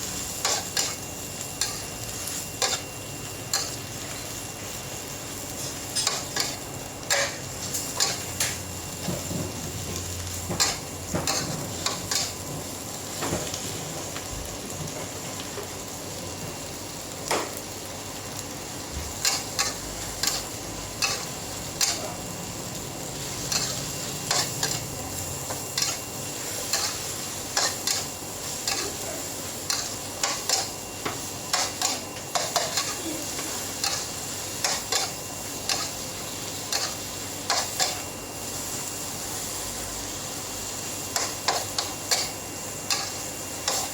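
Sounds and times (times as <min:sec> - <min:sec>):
food sizzling on a pan: 0:00.0 - 0:43.9.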